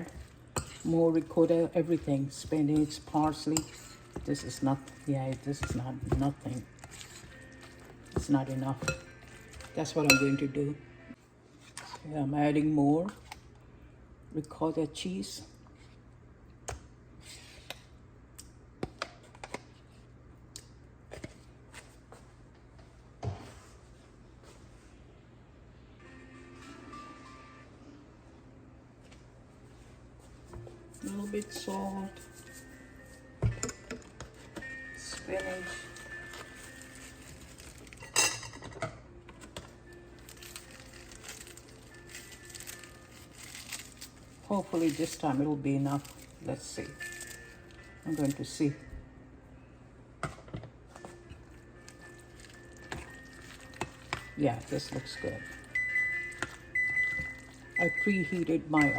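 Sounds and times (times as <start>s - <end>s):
soft background music: 0.0s - 15.2s, 23.4s - 58.9s
utensil clinking on a bowl: 8.1s - 10.5s.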